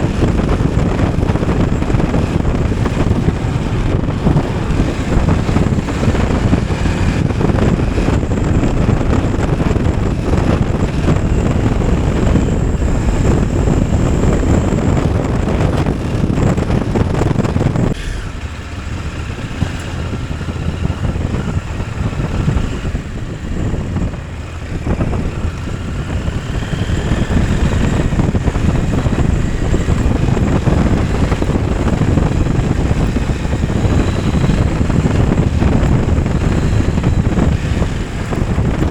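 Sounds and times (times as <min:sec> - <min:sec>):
motorcycle engine: 0:00.0 - 0:38.9
wind noise on microphone: 0:00.0 - 0:38.9.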